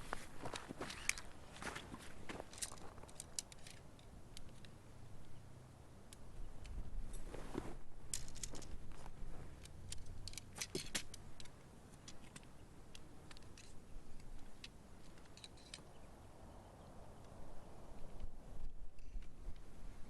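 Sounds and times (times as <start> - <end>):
tent poles clicking and rattling: 0.0 - 5.4, 6.1 - 16.0.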